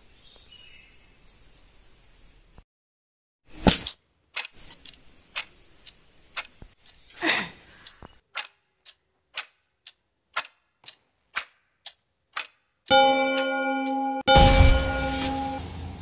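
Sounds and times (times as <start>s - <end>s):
clock ticking: 4.3s - 7.1s, 7.8s - 14.5s
loud sharp hit: 14.3s - 16.0s
whoosh falling in pitch: 14.3s - 16.0s.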